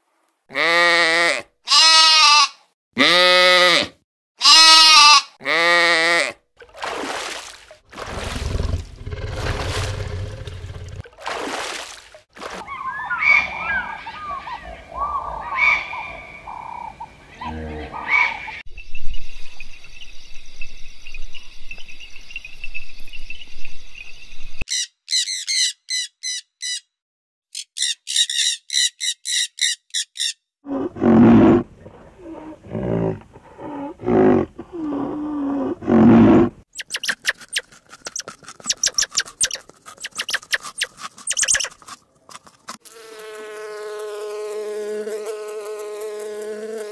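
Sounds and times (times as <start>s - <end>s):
high chirping bird calls: 12.7s - 18.6s, 24.7s - 26.9s, 27.5s - 30.4s, 36.8s - 41.8s.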